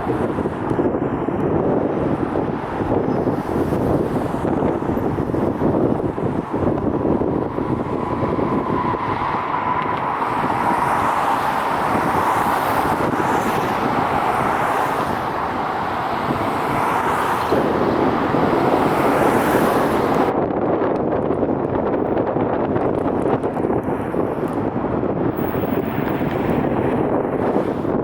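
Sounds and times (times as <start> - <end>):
wind on microphone: 0.0 - 28.0
jet engine roar: 4.9 - 20.3.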